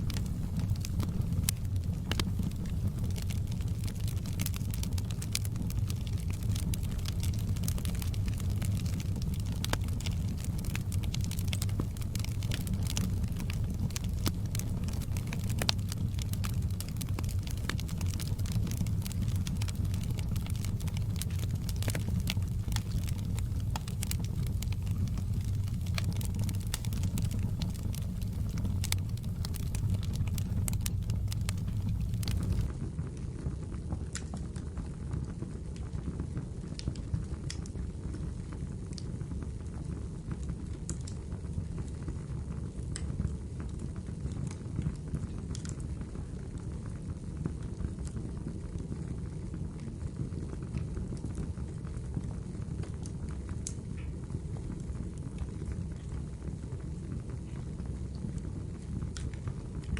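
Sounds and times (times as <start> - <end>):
wood fire crackling and popping: 0.0 - 32.7.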